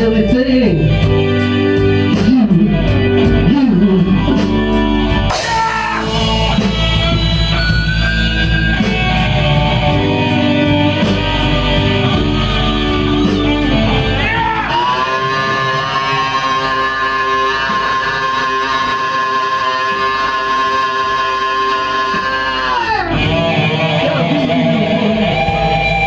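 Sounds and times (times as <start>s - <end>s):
blues-rock band playing: 0.0s - 26.0s
electric guitar bending notes: 1.1s - 26.0s
cymbal beat: 5.3s - 9.1s.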